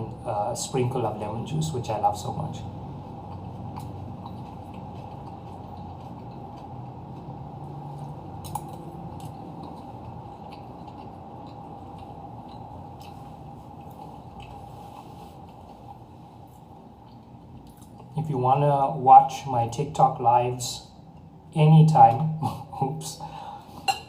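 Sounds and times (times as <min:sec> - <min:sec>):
steady low hum: 0:00.0 - 0:24.0
person chewing: 0:02.8 - 0:18.2.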